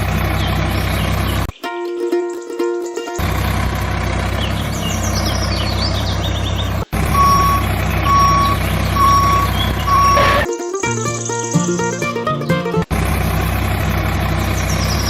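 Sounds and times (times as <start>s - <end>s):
vehicle engine droning: 0.0s - 1.6s, 3.1s - 10.5s, 11.2s - 15.0s
reversing alarm beeps: 7.1s - 10.5s.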